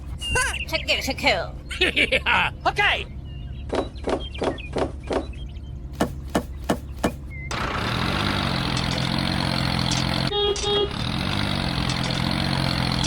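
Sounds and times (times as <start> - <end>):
engine-like motor sound: 5.9 - 13.0
sharp knocks like chopping: 6.0 - 7.2.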